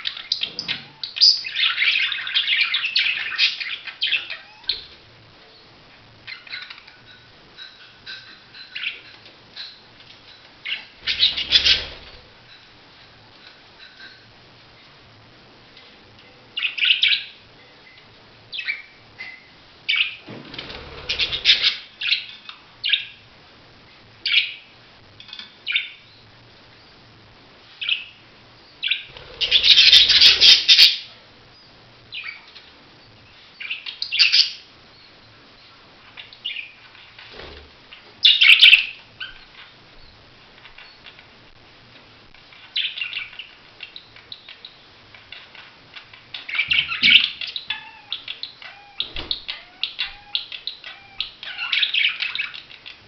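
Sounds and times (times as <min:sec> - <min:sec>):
budgerigars chirping: 0:10.6 - 0:12.1, 0:21.0 - 0:23.1, 0:28.8 - 0:31.1, 0:42.7 - 0:53.0.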